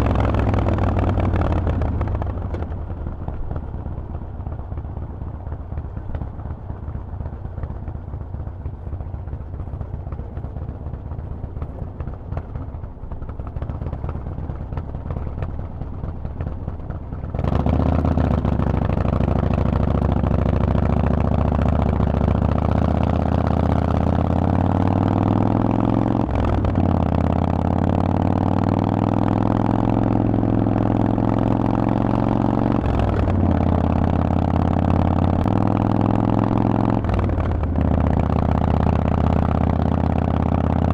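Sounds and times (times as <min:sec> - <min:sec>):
motorcycle engine burbling and accelerating: 0:00.0 - 0:40.9.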